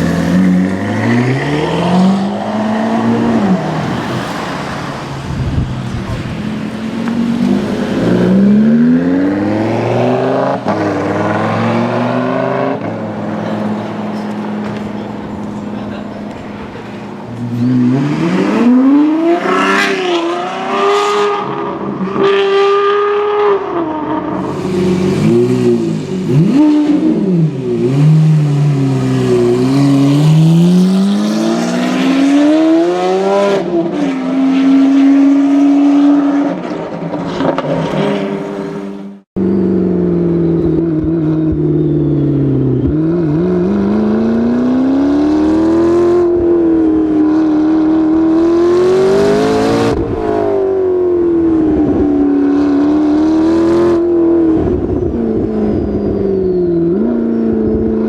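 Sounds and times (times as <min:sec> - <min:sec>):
supercar engine accelerating: 0:00.0 - 0:36.8.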